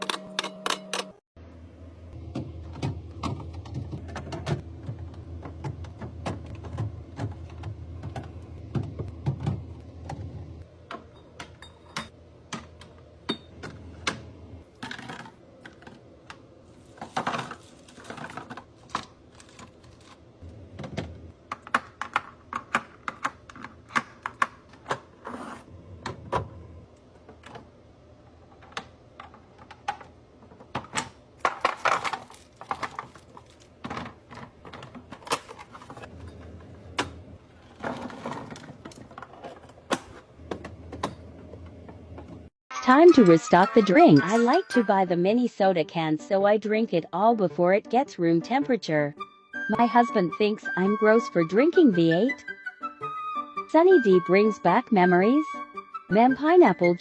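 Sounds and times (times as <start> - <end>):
plastic containers clattering: 28.5 - 36.6.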